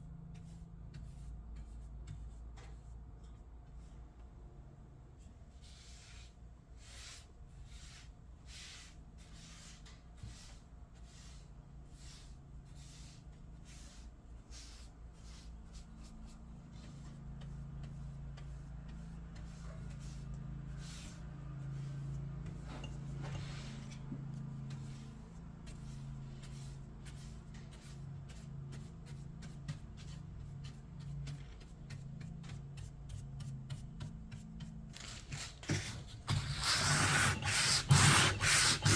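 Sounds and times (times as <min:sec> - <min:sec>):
low background hum: 0:00.0 - 0:36.6
sanding strokes: 0:36.3 - 0:38.9.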